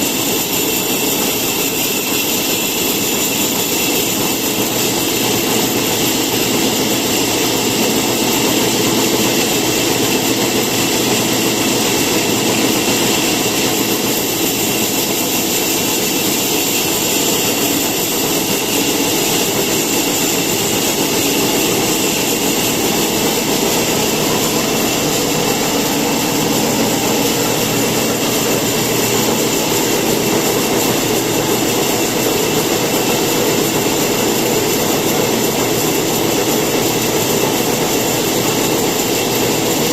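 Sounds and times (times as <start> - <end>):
electric motor humming and whining: 5.6 - 33.7.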